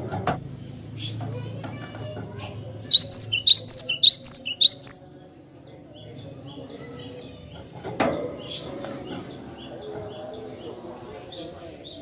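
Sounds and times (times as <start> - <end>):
faint bird chirps: 2.4 - 5.2
bird whistling rising notes: 2.9 - 5.0.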